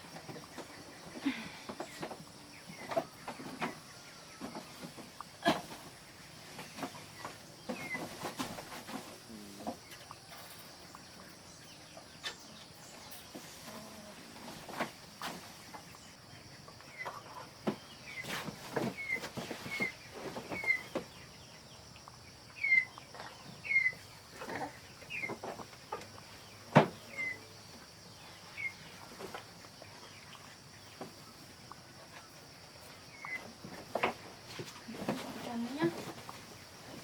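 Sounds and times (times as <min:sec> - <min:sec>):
chickens chirping: 0:00.0 - 0:37.0
knocks and thumps: 0:24.4 - 0:27.3.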